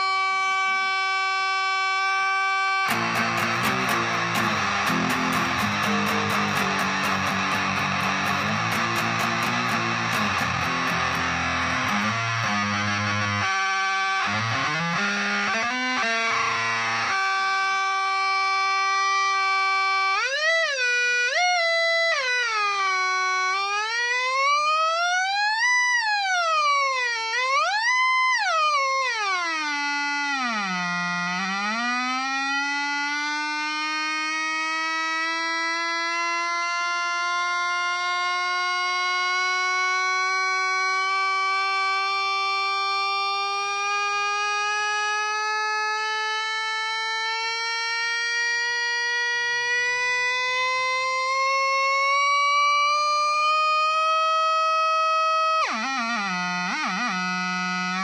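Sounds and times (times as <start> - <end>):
sustained fuzz guitar tone gliding: 0.0 - 21.2
fuzzed electric guitar playing: 2.8 - 21.2.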